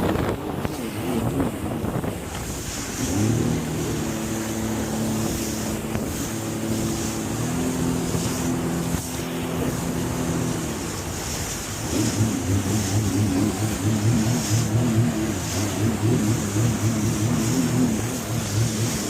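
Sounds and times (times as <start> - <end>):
jet ski engine running: 0.0 - 19.0
wind rushing over microphone: 0.0 - 19.0.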